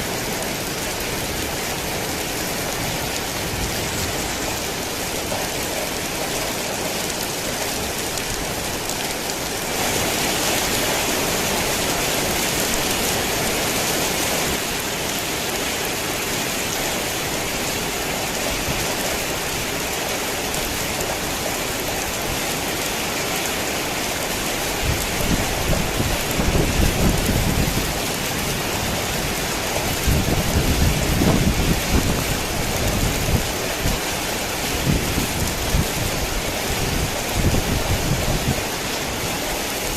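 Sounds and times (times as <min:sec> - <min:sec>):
heavy rain pouring: 0:00.0 - 0:39.9
thunder rumbling: 0:24.8 - 0:34.1.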